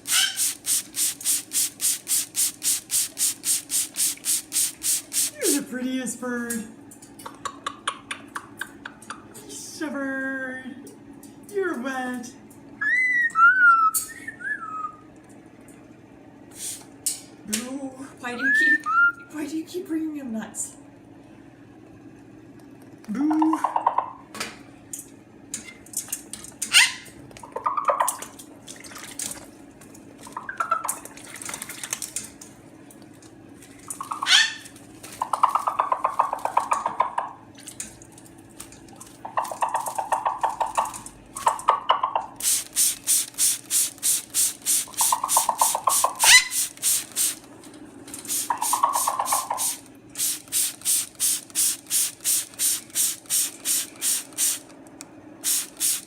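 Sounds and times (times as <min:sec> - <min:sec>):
spray bottle squirting: 0:00.0 - 0:05.5, 0:42.4 - 0:47.5, 0:48.2 - 0:54.7, 0:55.4 - 0:56.0
short buzzy bursts: 0:00.0 - 0:05.6, 0:42.4 - 0:47.4.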